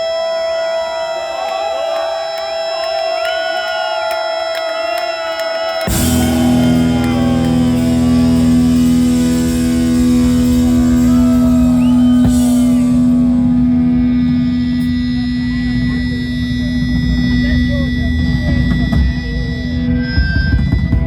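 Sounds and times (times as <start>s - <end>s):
sustained guitar chord: 5.9s - 20.2s.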